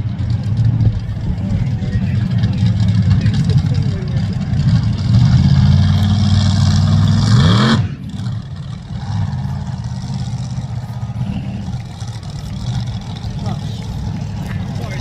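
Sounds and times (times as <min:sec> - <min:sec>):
monster truck engine revving: 0:00.0 - 0:15.0
quieter engine drone: 0:00.0 - 0:15.0.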